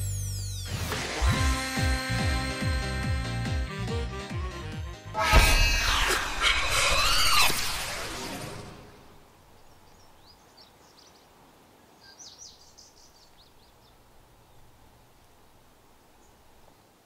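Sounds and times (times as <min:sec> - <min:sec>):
faint outdoor ambience: 0:05.1 - 0:17.0
music and crash: 0:05.2 - 0:09.1.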